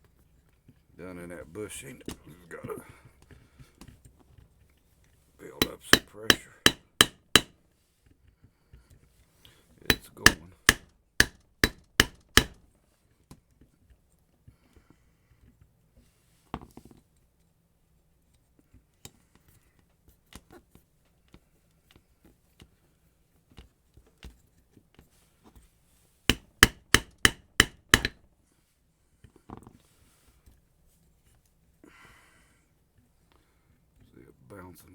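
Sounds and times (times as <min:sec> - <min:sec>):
sharp knocks: 0:05.6 - 0:07.5, 0:09.9 - 0:12.6, 0:26.3 - 0:28.2.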